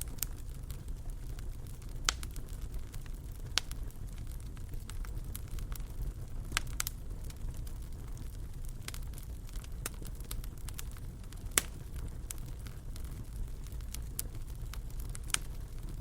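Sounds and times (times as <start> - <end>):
fire popping: 0.0 - 16.0
fire rumbling: 0.0 - 16.0.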